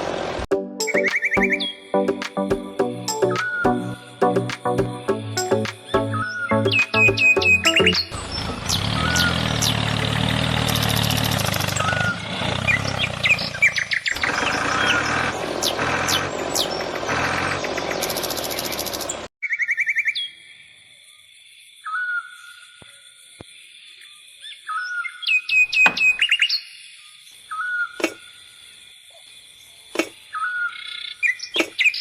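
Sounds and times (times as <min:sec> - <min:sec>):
birds chirping: 0:00.8 - 0:19.9, 0:24.7 - 0:26.8.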